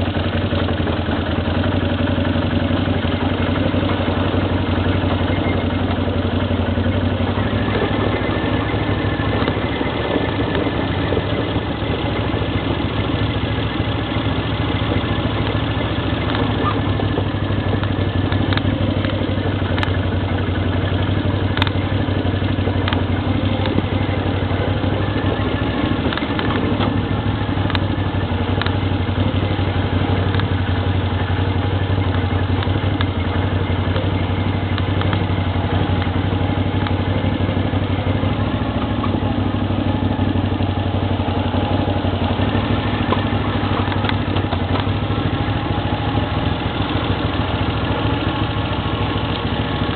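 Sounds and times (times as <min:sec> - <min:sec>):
atv engine running: 0:00.0 - 0:49.9
sharp clicks: 0:21.5 - 0:21.8, 0:26.0 - 0:27.0, 0:27.6 - 0:28.8, 0:34.7 - 0:36.2, 0:41.4 - 0:45.3.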